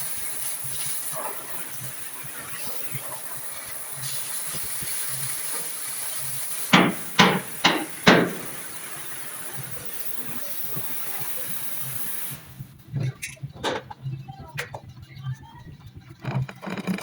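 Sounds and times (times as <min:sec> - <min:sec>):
steady hiss: 0:00.0 - 0:12.9
hammer blows on steel: 0:06.7 - 0:08.8.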